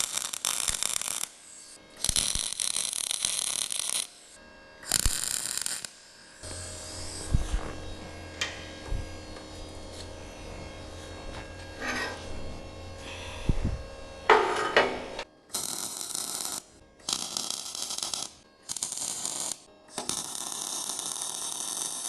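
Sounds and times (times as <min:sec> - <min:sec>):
arc welding crackling buzz: 0:00.0 - 0:22.0
steady low hum: 0:06.4 - 0:15.4.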